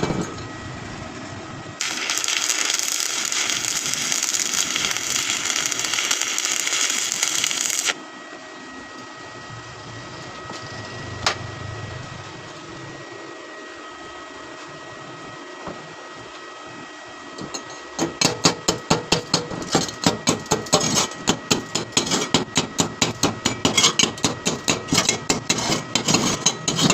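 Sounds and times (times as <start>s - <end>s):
welding arc crackling: 1.8s - 8.0s.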